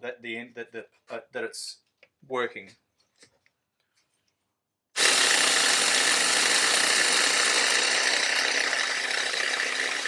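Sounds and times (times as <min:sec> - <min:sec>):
electric starter cranking engine: 0:05.0 - 0:10.0.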